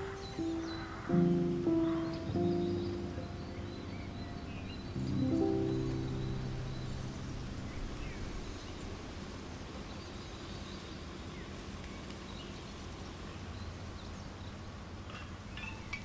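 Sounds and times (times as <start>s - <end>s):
faint bird chirps: 0.0s - 9.2s
steady background hiss: 0.0s - 16.0s.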